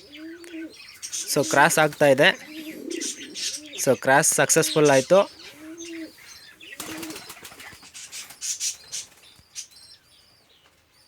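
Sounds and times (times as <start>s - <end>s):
pigeon cooing: 0.0s - 9.2s
pigeon wings flapping: 6.8s - 9.2s.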